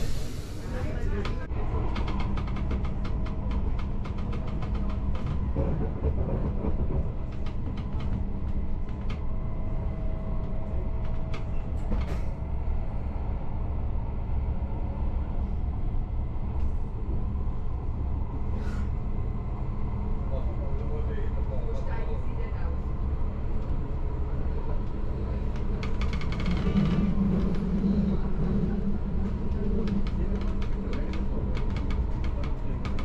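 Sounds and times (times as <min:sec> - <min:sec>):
train rumbling on track: 0:00.0 - 0:33.0.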